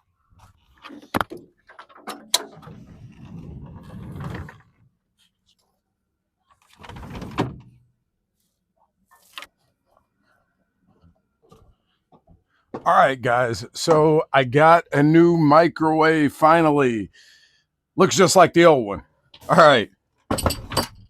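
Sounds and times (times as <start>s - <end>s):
low rumbling of moving belongings: 2.4s - 5.8s.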